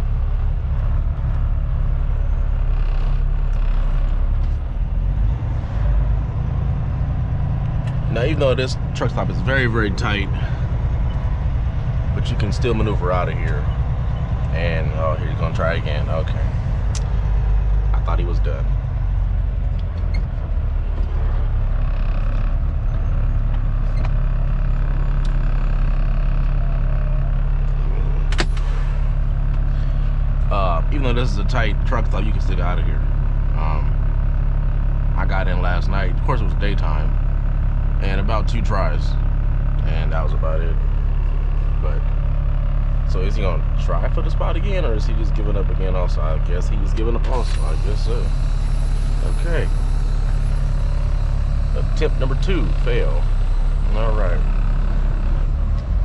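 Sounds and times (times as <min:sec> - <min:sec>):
diesel truck engine rumbling: 0:00.0 - 0:56.0.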